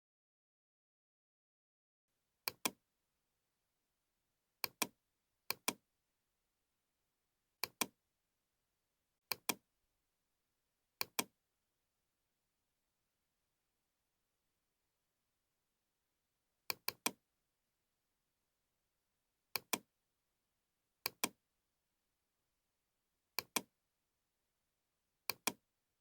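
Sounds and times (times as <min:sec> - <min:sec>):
computer mouse double-clicking: 0:11.0 - 0:11.3, 0:21.1 - 0:21.3, 0:25.3 - 0:25.6.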